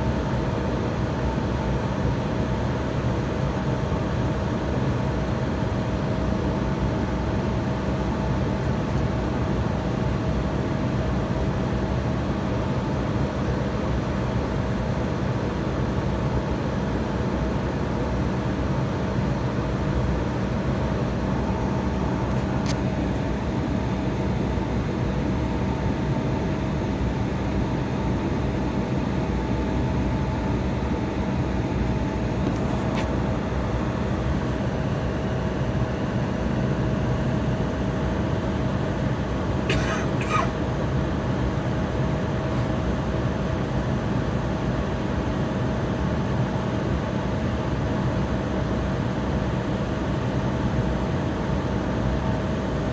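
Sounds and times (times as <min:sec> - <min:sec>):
jet engines and cabin hum: 0:00.0 - 0:52.9.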